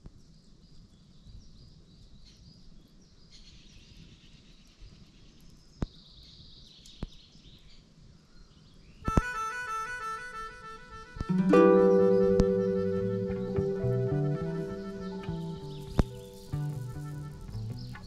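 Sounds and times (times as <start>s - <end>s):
small birds chirping and trilling: 0.2s - 9.0s.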